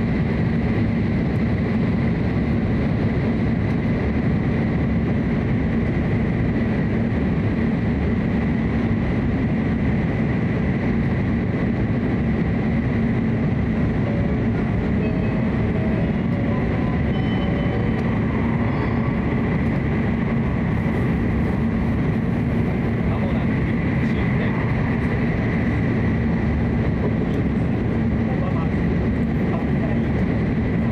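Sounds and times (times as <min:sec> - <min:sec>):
train rumble of wheels and air: 0:00.0 - 0:30.9
faint high whine: 0:14.0 - 0:21.1.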